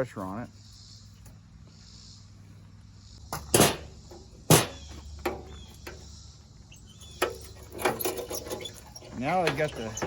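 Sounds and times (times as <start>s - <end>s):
sharp metal knocks: 3.3s - 6.0s.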